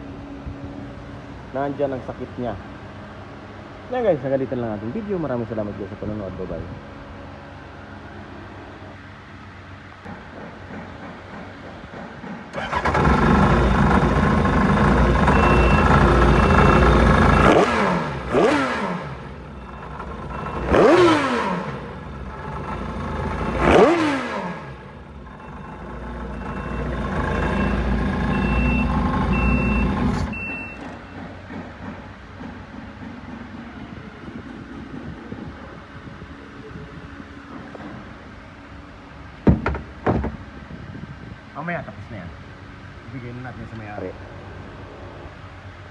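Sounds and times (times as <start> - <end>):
jet ski engine revving: 12.5 - 30.4
high electronic beep: 15.3 - 17.7.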